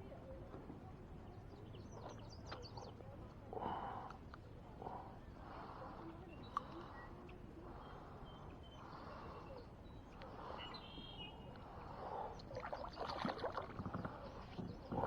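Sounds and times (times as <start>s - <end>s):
water splashing and sloshing: 12.4s - 15.0s.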